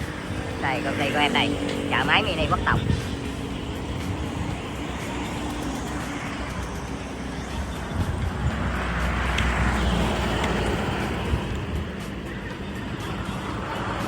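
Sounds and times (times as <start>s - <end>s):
road traffic: 0.0s - 14.0s
vehicle passing close by: 0.0s - 14.0s.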